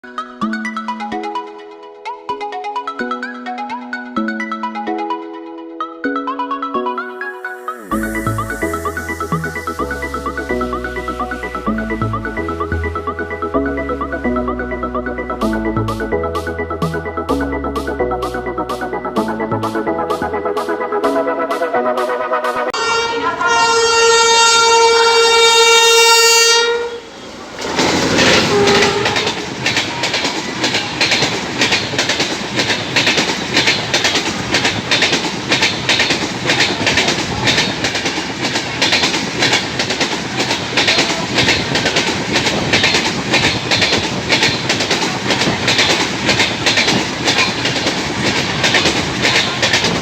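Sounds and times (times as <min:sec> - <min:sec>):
train wheels clicking over rail joints: 0:27.1 - 0:50.0.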